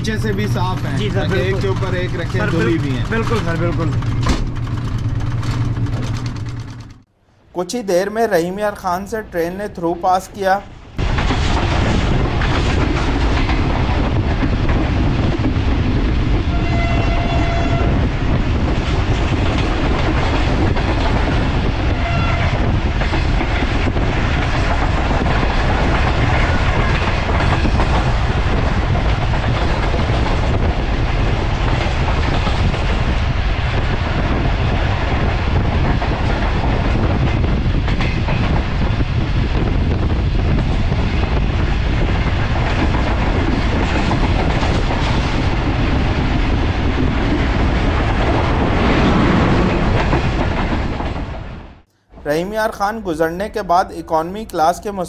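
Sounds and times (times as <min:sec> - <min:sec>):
train wheels clattering: 0:00.0 - 0:07.0
train rumble: 0:00.0 - 0:55.0
train horn: 0:16.5 - 0:18.1, 0:21.9 - 0:22.6.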